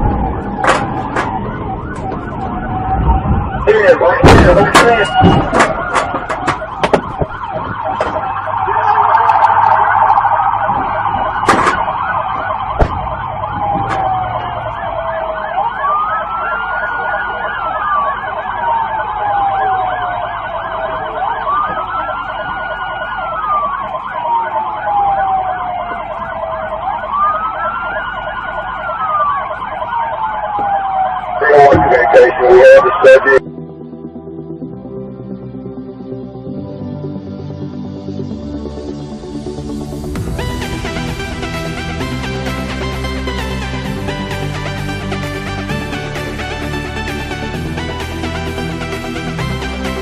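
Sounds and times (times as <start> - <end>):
police siren yelping: 0.0 - 33.6
police siren wailing: 0.0 - 50.0.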